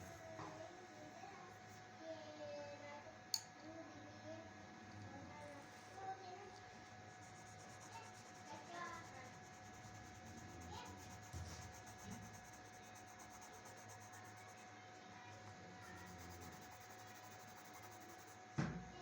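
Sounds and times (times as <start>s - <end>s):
pencil scratching on paper: 7.2s - 14.6s, 15.8s - 18.4s.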